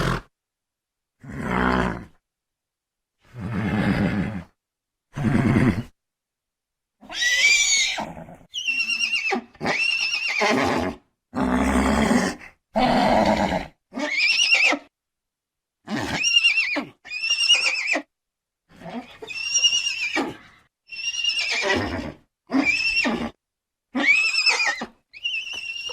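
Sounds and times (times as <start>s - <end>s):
horse neighing: 0.0s - 0.3s, 7.0s - 11.0s, 11.6s - 14.9s, 21.0s - 23.4s, 24.0s - 25.9s.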